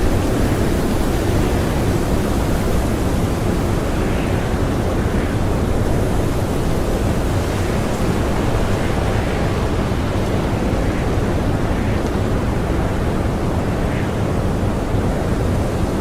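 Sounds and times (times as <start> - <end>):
strong blizzard wind: 0.0 - 16.0.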